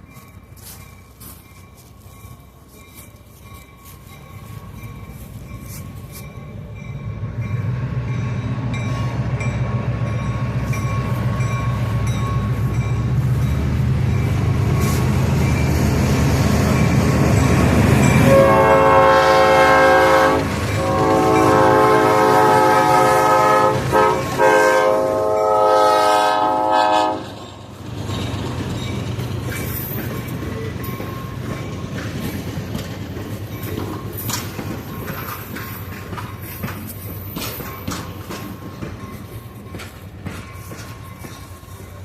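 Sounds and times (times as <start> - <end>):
train rumbling: 0.0 - 42.0
locomotive air horn: 18.2 - 27.4.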